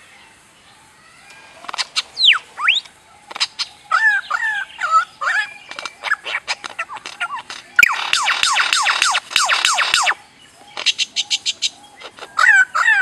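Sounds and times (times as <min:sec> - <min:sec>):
bird whistles gliding down: 0:02.2 - 0:02.9, 0:07.8 - 0:10.2.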